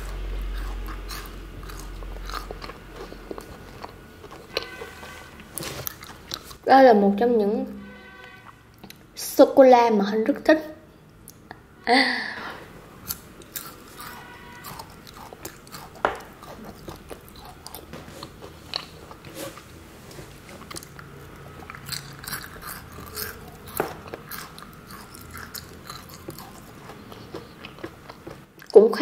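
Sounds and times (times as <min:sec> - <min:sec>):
person chewing chocolate: 0:00.0 - 0:06.7, 0:08.7 - 0:09.1, 0:13.0 - 0:28.8.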